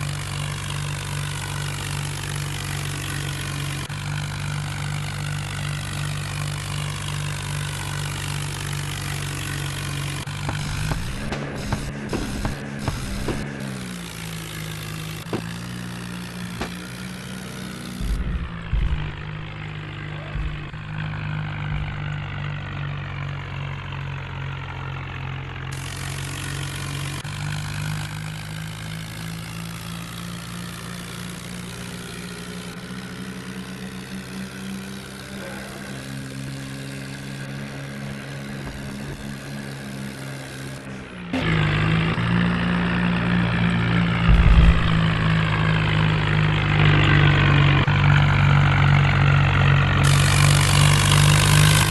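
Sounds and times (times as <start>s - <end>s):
tractor diesel engine running: 0.0s - 51.9s
thumps: 10.4s - 13.6s, 15.2s - 17.1s, 17.9s - 22.3s, 44.2s - 45.6s.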